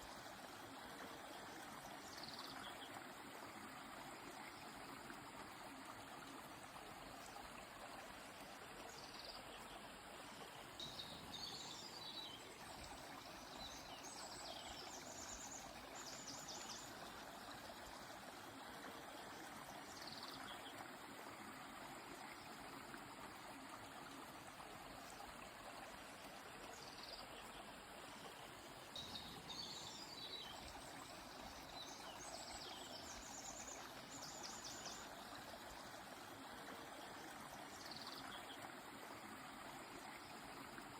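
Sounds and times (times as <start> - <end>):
stream flowing: 0.0 - 40.9
songbird chirping and trilling: 29.0 - 35.1.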